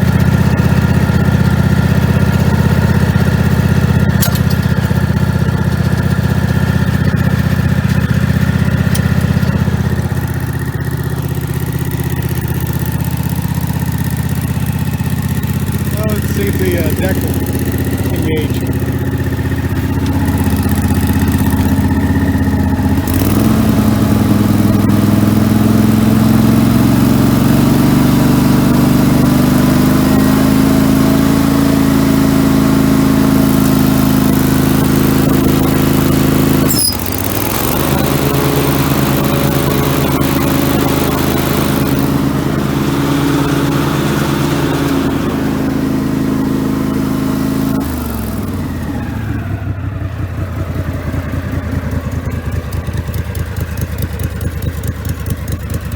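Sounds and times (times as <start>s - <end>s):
garden tractor engine running: 0.0s - 55.9s
sharp click: 4.2s - 4.7s.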